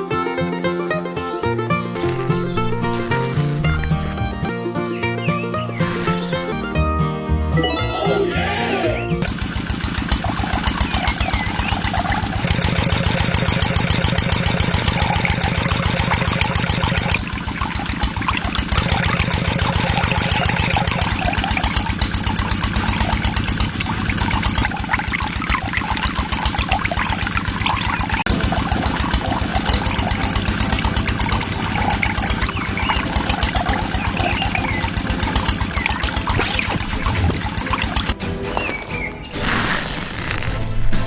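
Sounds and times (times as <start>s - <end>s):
small engine running: 1.5s - 6.8s, 9.2s - 40.8s
water rushing from pump: 2.0s - 4.4s, 9.2s - 40.9s.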